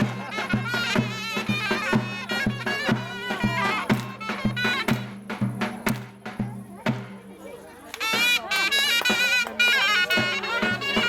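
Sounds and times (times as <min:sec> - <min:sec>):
reedy wind instrument melody: 0:00.0 - 0:05.4, 0:07.8 - 0:11.0
drum beats: 0:00.0 - 0:11.0.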